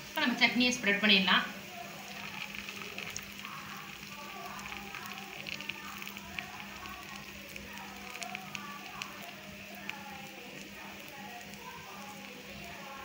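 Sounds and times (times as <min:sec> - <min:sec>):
dosa sizzling on a hot pan: 0:00.0 - 0:13.0
spoon spreading chutney: 0:01.7 - 0:13.0.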